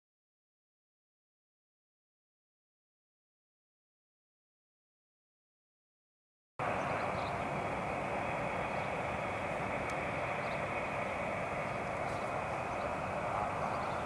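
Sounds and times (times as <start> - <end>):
jet engine noise: 6.6 - 14.0.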